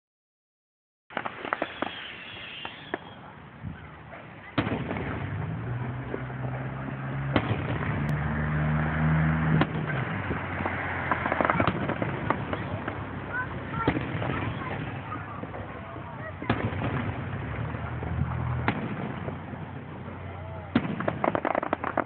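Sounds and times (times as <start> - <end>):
fireworks bangs: 1.1 - 22.0
fireworks crackles: 1.1 - 22.0.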